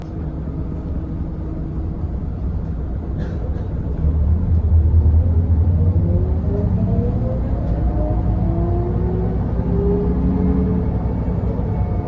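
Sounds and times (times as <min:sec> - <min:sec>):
bus diesel engine rumbling: 0:00.0 - 0:12.0
rising engine whine: 0:04.1 - 0:12.0.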